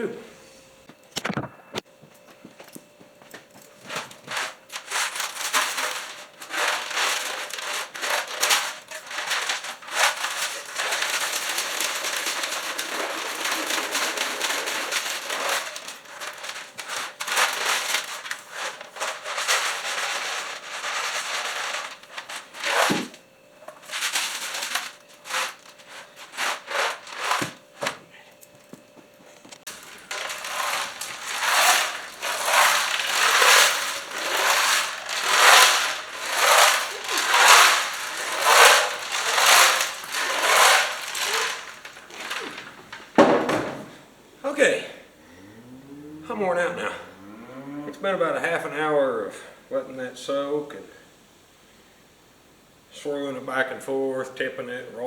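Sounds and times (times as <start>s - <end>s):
liquid sloshing in metal tank: 4.3s - 20.2s, 29.7s - 44.0s.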